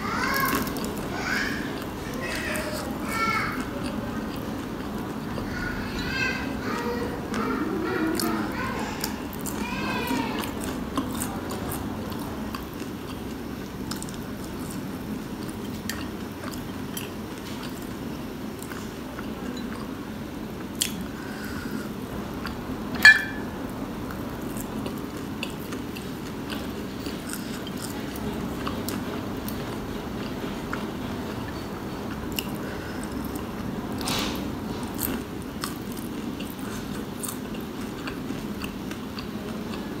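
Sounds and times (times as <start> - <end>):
chewing and biting food: 8.0 - 20.0, 20.6 - 21.5, 24.0 - 40.0.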